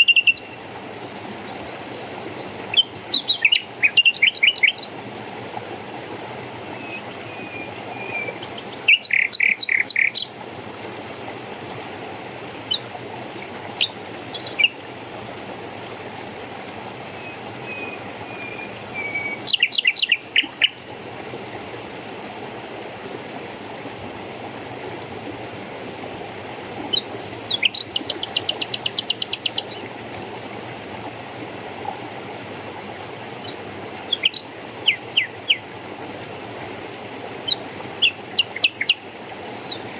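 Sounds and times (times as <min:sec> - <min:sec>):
running water rushing: 0:00.0 - 0:39.9
songbirds chirping: 0:01.3 - 0:05.0, 0:06.5 - 0:10.4, 0:17.0 - 0:20.9, 0:26.3 - 0:29.9, 0:37.4 - 0:39.9.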